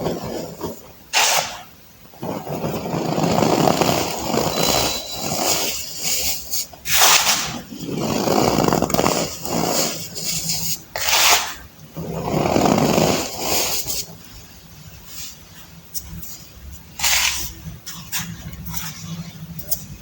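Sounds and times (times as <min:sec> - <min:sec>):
baking soda crunching by hand: 0:00.0 - 0:14.1, 0:17.0 - 0:17.6.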